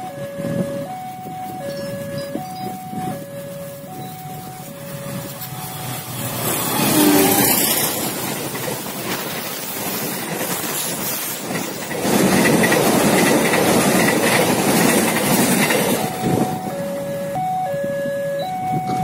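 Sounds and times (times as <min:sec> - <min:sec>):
diesel locomotive passing: 0:00.0 - 0:19.0
train wheels clattering on rails: 0:04.2 - 0:17.1.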